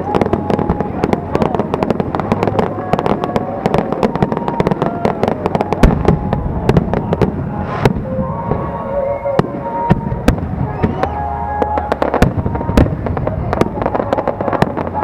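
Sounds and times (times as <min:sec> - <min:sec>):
fireworks crackling and popping: 0:00.0 - 0:15.0
heavy fireworks bang: 0:00.0 - 0:15.0.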